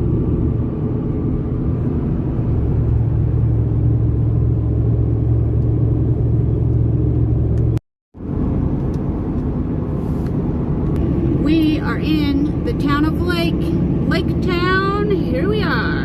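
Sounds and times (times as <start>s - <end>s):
car engine rumble: 0.0s - 16.0s
tyre road noise: 0.0s - 16.0s.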